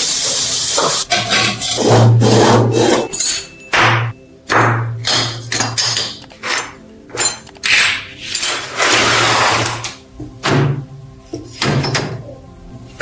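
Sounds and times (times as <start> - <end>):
hand tool scraping strokes: 0.3 - 3.2, 8.2 - 10.0.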